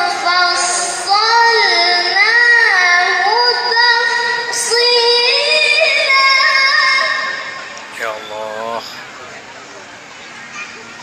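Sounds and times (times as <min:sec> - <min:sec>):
child reciting melodically: 0:00.0 - 0:07.6.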